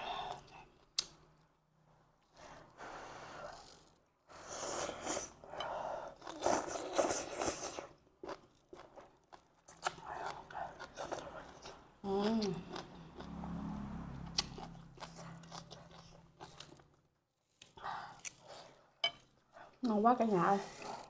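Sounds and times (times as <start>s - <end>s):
person chewing: 3.6s - 13.5s, 14.2s - 19.5s.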